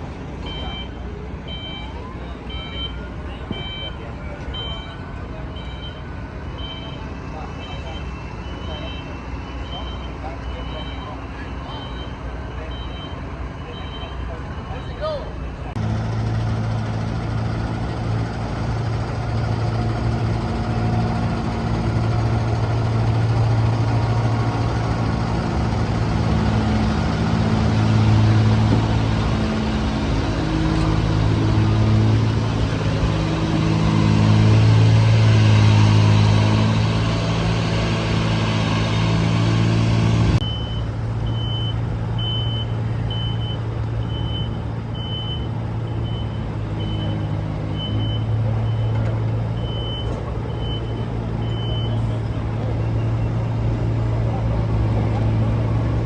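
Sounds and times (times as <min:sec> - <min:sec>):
haul truck engine droning: 0:00.0 - 0:56.0
reversing alarm beeping: 0:00.4 - 0:15.0, 0:40.3 - 0:49.0, 0:49.6 - 0:52.2.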